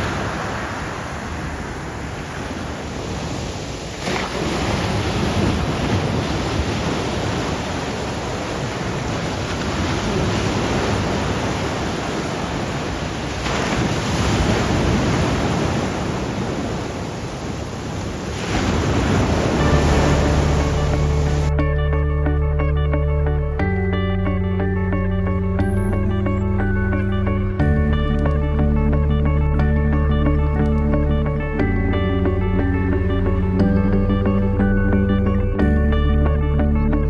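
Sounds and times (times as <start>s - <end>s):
sea waves breaking: 0.0s - 21.7s
wind noise on microphone: 0.0s - 37.0s.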